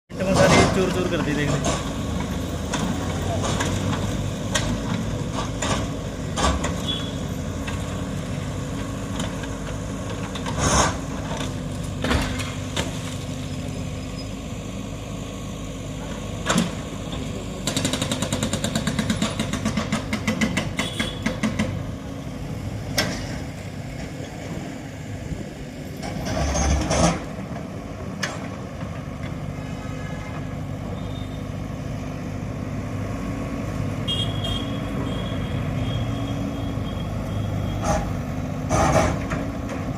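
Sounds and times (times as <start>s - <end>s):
engine hum: 0.1s - 39.9s.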